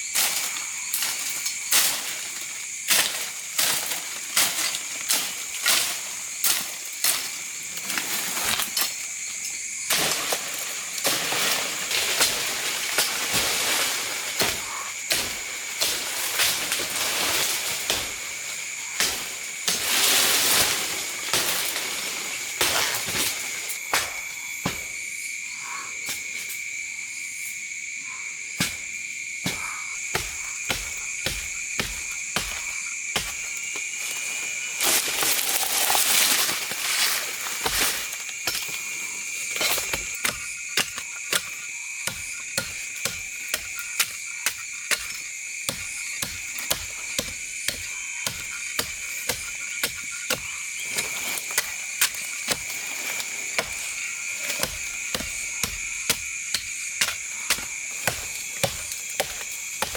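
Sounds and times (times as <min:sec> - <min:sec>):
forest animals calling: 0:14.4 - 0:15.6
rustling: 0:30.1 - 0:40.0.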